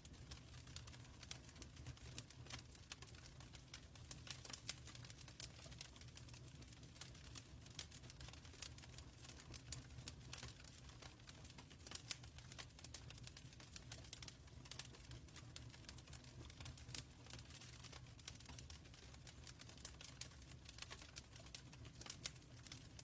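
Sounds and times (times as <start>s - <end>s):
fire crackling in a fireplace: 0.0s - 23.0s.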